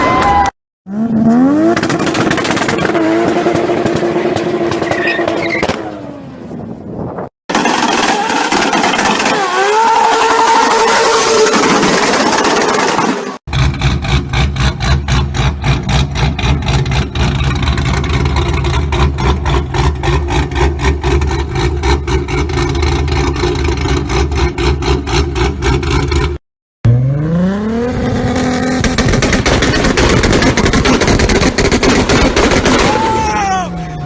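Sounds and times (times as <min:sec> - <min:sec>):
car engine revving: 0:00.9 - 0:05.7, 0:11.2 - 0:30.4
car engine pulsing: 0:11.6 - 0:32.8.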